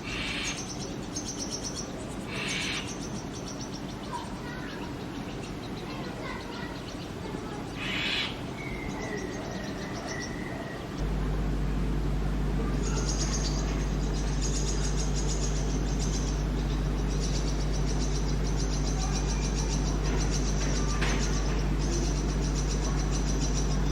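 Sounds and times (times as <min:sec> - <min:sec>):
nestlings begging calls: 0:00.0 - 0:23.9
steady low hum: 0:10.8 - 0:23.9
rapid high chirping: 0:11.8 - 0:23.9.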